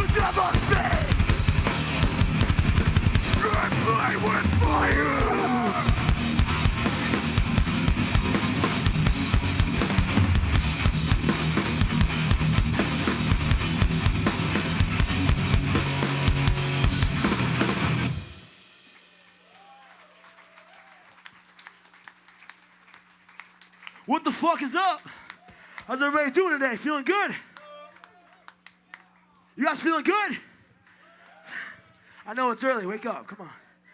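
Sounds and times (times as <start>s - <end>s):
distorted guitar: 0.0s - 18.5s
fast pounding drums: 0.0s - 18.6s.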